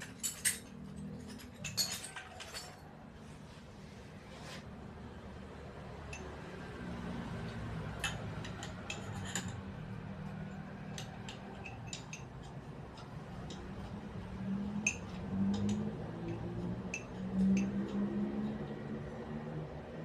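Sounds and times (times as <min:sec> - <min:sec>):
metal tools clinking: 0:00.0 - 0:02.9, 0:08.0 - 0:09.7.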